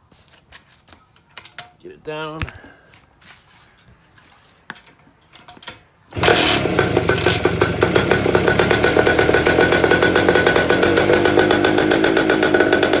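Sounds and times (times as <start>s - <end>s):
motorcycle engine running: 6.1s - 13.0s.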